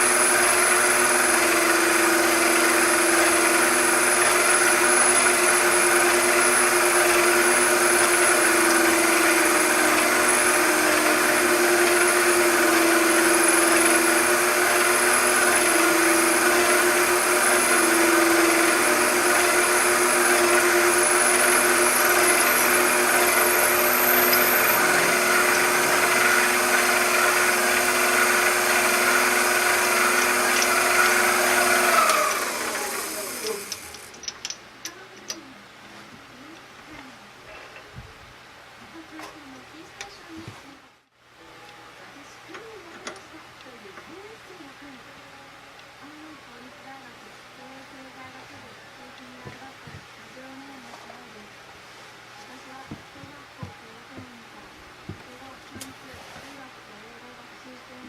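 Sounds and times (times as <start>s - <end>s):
electric motor humming and spinning down: 0.0s - 34.2s.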